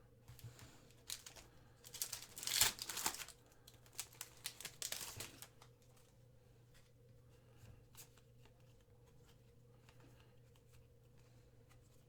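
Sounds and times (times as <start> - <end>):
foil wrapper crinkling and tearing: 0.9 - 5.7.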